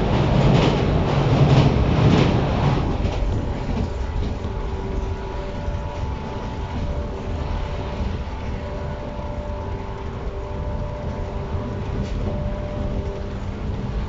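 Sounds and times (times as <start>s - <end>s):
train equipment humming and whining: 0.0s - 14.0s.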